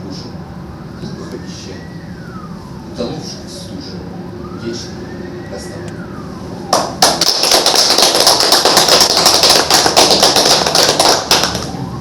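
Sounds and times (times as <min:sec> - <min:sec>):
audience applauding: 0:07.0 - 0:11.7.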